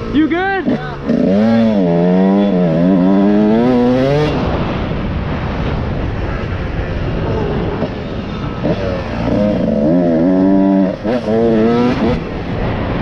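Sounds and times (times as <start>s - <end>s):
motorcycle engine running: 0.0s - 5.3s
steady rushing noise: 0.0s - 13.0s.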